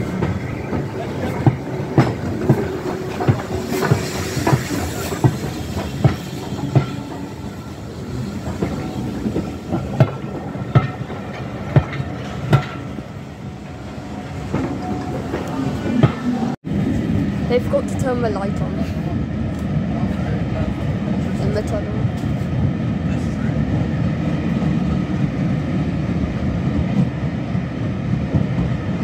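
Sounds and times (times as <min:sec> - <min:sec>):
train wheels clacking on rail joints: 0:00.0 - 0:16.6
steady train rumble: 0:00.0 - 0:29.0.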